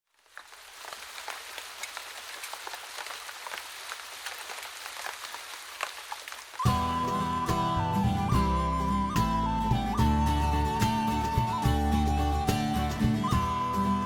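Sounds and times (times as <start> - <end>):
rain hissing: 0.1 - 14.0
raindrop clicks: 0.2 - 6.7.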